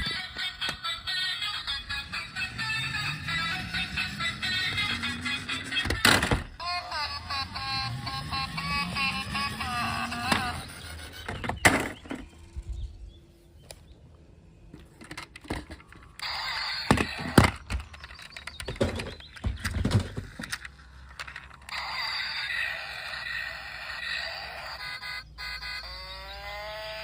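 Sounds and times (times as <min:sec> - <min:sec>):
plastic toys clattering: 0:00.0 - 0:02.4, 0:03.3 - 0:06.6, 0:09.2 - 0:12.3, 0:14.7 - 0:25.6
electronic toy sound: 0:00.0 - 0:12.6, 0:16.0 - 0:27.0.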